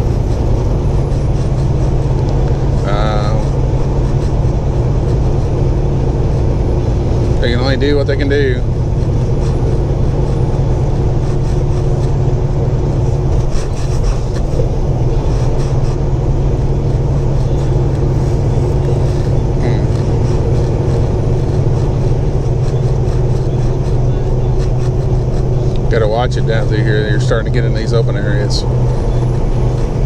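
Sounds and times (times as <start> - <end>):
road noise: 0.0 - 30.0
truck diesel engine running: 0.0 - 30.0.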